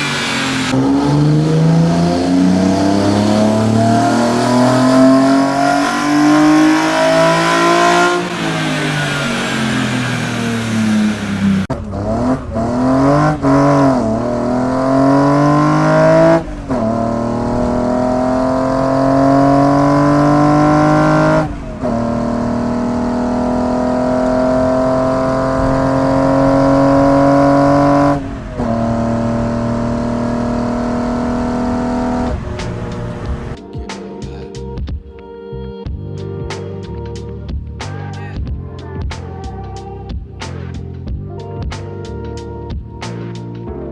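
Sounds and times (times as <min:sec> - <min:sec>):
car accelerating through gears: 0:00.0 - 0:33.6
car engine revving: 0:00.0 - 0:33.6.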